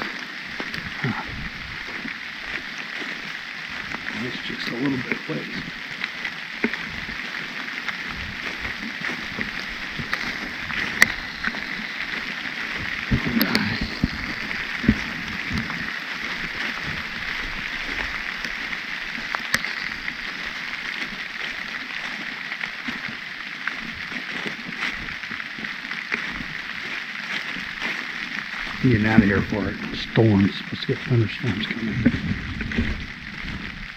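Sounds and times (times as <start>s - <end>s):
rain pattering: 0.0s - 33.9s
dull low thumps: 28.7s - 33.9s.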